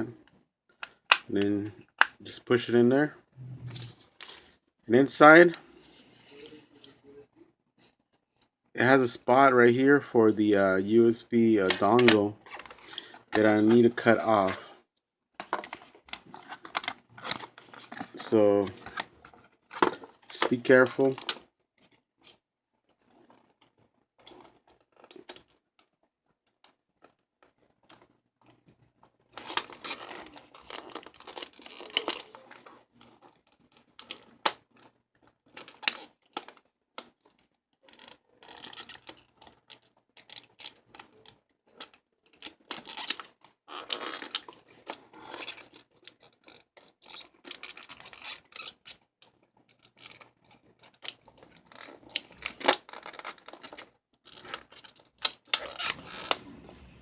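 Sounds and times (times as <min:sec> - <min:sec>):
plastic packaging scraping and rustling: 0:15.4 - 0:21.4, 0:29.3 - 0:57.0.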